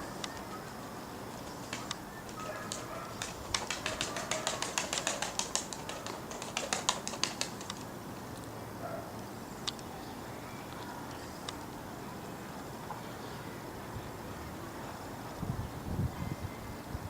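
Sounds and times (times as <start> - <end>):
pigeon wings beating: 0.2 - 7.9.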